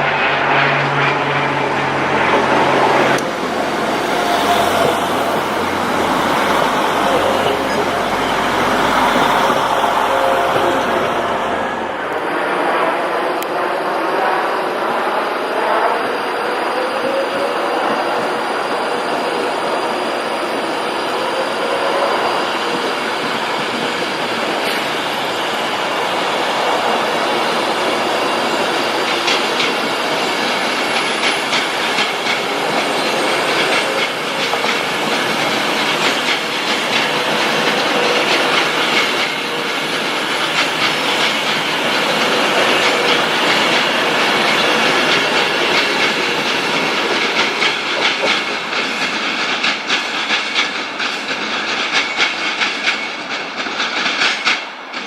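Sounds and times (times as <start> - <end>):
train wheels rumbling on rails: 0.0 - 55.0
wheels clicking over rail joints: 28.5 - 55.0.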